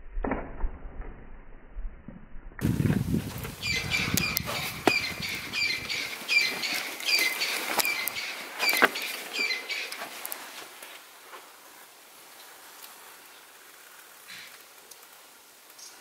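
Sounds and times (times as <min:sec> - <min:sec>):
low rumble: 0:00.0 - 0:05.6
bird chirping: 0:03.5 - 0:10.2.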